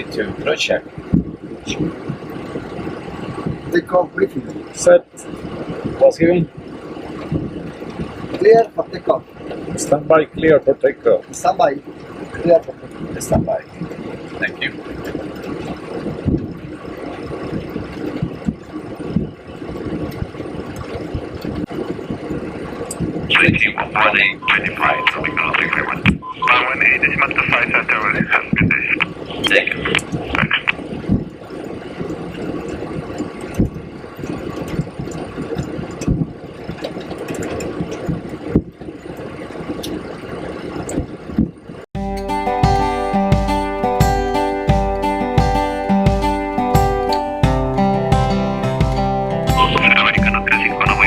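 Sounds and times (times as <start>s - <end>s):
jet engine rumble and hiss: 0.0s - 38.5s
jet engines idling: 22.2s - 34.6s, 42.1s - 51.0s
acoustic guitar music: 42.0s - 51.0s
low thumps: 42.0s - 51.0s.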